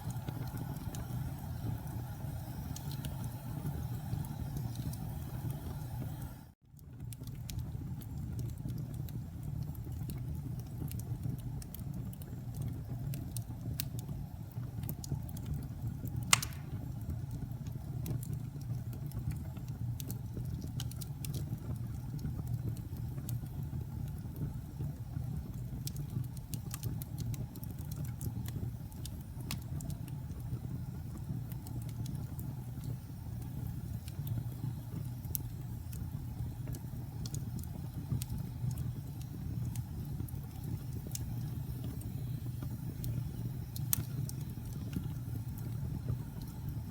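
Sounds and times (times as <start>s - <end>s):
campfire flames rumbling: 0.0s - 46.9s
wood crackling: 16.2s - 17.0s
sharp pop of fire: 16.3s - 17.0s.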